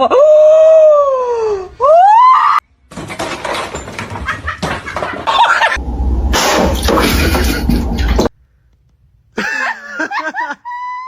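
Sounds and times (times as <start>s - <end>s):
clattering and rustling: 2.8s - 5.8s, 6.4s - 8.4s.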